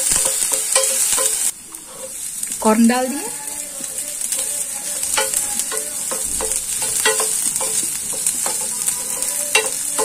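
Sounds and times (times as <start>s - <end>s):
vegetables sizzling in oil: 0.0s - 10.0s
wooden spatula scraping pan: 0.3s - 2.2s.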